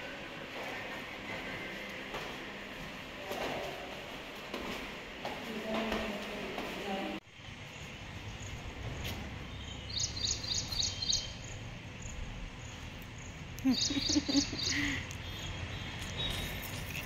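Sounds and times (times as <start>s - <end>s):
low outdoor background hum: 0.0s - 17.0s
bird chirping: 9.4s - 12.2s, 13.6s - 17.0s.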